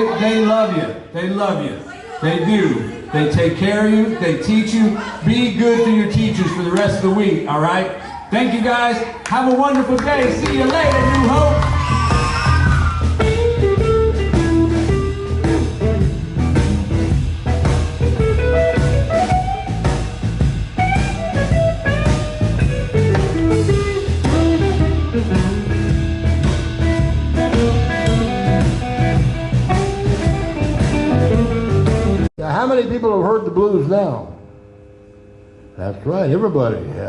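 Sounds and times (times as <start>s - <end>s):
bass guitar: 8.9s - 37.0s
drum kit beat: 9.8s - 33.1s
electric guitar lead: 10.0s - 37.0s.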